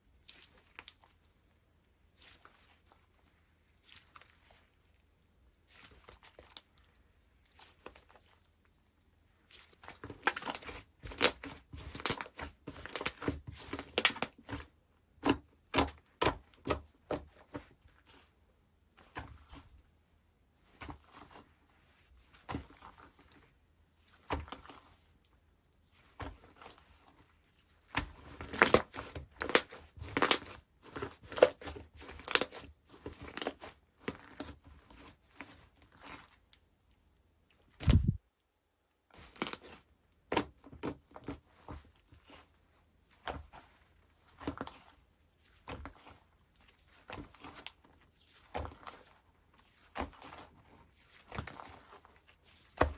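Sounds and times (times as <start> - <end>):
slime crackling and squelching: 0.1 - 8.6, 9.4 - 18.3, 25.8 - 36.5, 39.2 - 52.9.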